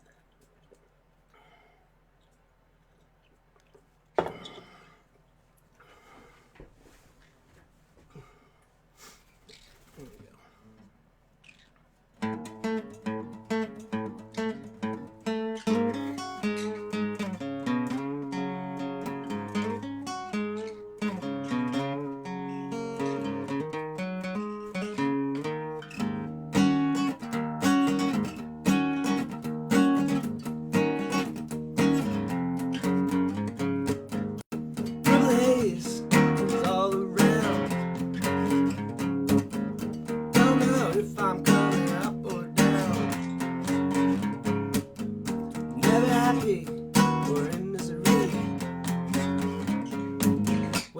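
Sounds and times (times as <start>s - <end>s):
resonator guitar picking and strumming: 12.2s - 50.9s.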